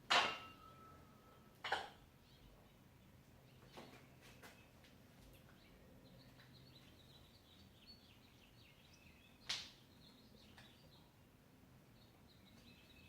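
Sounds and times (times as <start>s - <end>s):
faint bird chirping: 0.6s - 13.0s.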